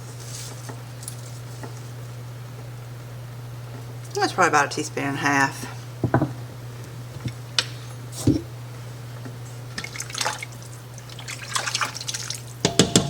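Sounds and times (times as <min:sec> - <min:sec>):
steady low hum: 0:00.0 - 0:11.4
spoon tapping pot: 0:06.0 - 0:06.4, 0:12.6 - 0:13.0.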